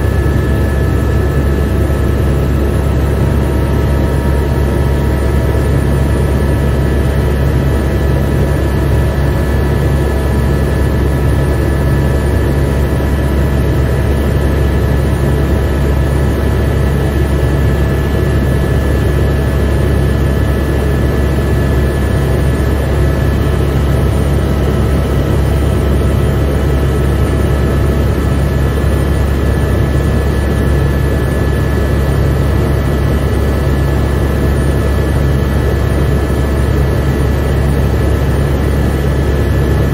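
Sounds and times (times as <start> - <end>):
helicopter rotor and engine drone: 0.0 - 39.9.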